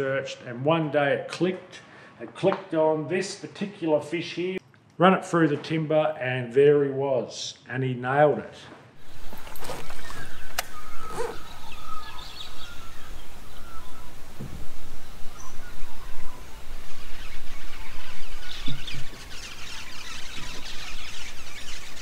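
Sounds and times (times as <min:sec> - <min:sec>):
birds chirping: 0:09.0 - 0:22.0.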